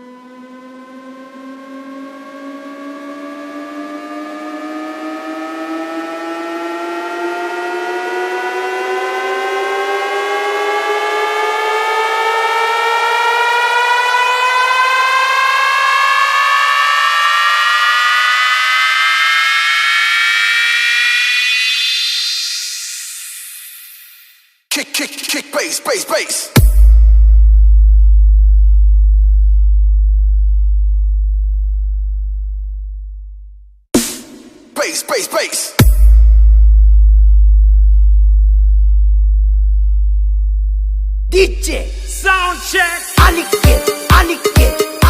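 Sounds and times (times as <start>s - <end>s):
synthesized rising sweep: 0.0s - 25.3s, 35.7s - 45.0s.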